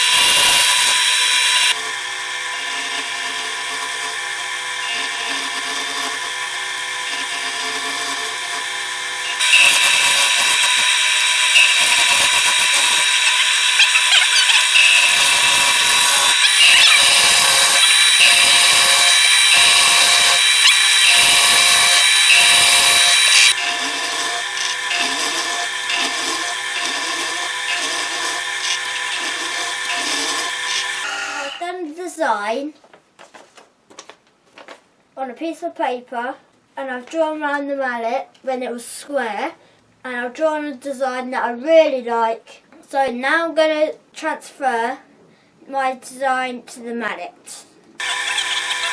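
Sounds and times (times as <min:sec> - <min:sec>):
tool cutting wood hiss: 0:00.0 - 0:31.6, 0:48.0 - 0:48.9
wood lathe motor whine: 0:00.0 - 0:31.6, 0:48.0 - 0:48.9.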